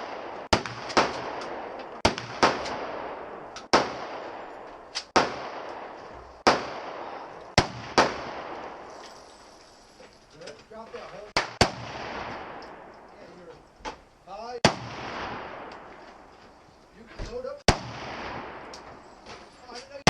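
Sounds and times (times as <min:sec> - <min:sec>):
gunshots with echo: 0:00.0 - 0:08.9, 0:11.3 - 0:12.9, 0:14.6 - 0:15.9, 0:17.7 - 0:18.9.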